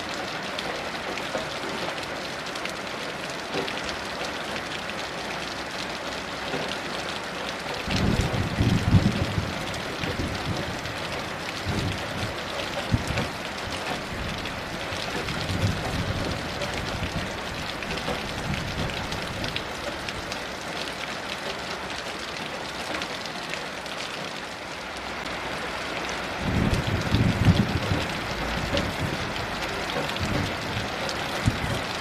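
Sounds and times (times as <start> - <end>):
heavy rain: 0.0 - 32.0
distant thunder rumbles: 7.9 - 19.6, 26.4 - 32.0.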